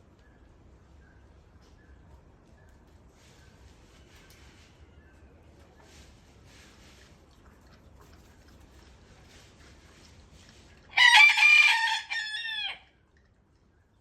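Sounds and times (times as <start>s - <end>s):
rooster crowing: 10.9s - 12.9s.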